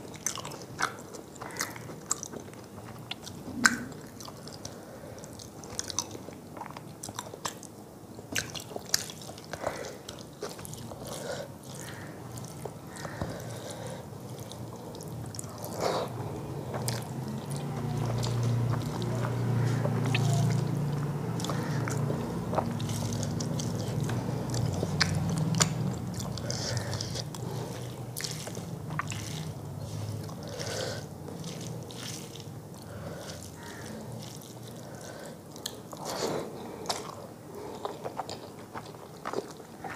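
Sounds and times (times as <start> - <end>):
chewing and mouth smacks: 0.0 - 39.9.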